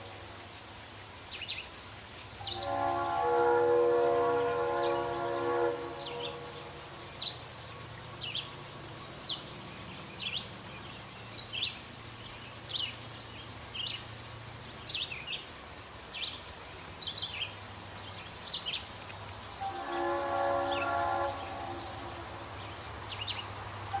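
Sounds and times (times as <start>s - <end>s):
multi-chime locomotive horn: 2.4s - 6.9s, 19.6s - 22.4s.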